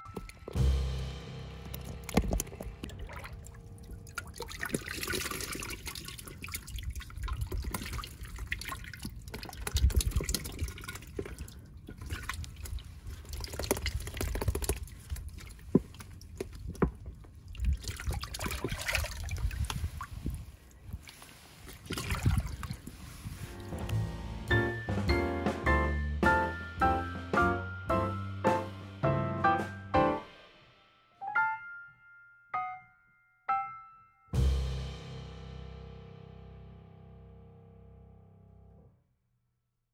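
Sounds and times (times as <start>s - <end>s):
water splashing and dripping: 0.0s - 23.9s.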